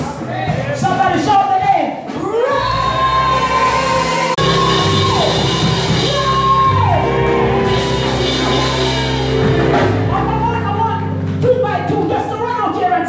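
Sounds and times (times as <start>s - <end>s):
voices holding long high shouts: 2.3s - 9.8s
keyboard and bass chords: 2.6s - 13.0s.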